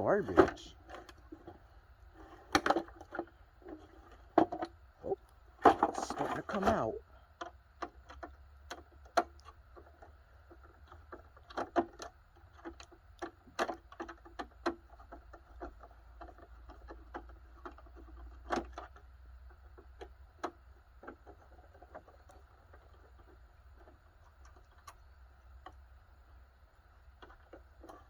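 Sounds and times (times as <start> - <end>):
plastic parts clicking and knocking: 2.2 - 4.8, 5.6 - 25.0, 27.2 - 28.0.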